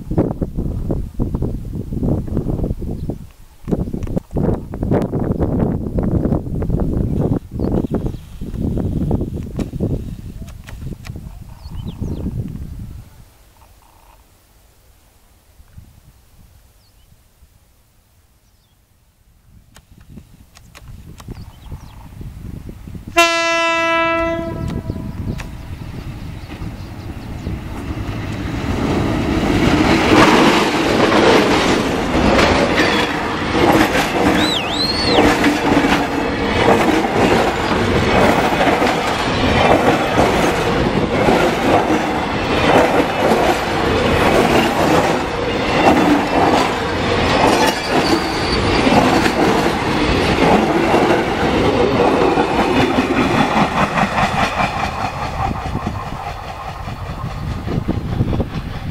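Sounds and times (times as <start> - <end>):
diesel locomotive passing: 21.7 - 58.9.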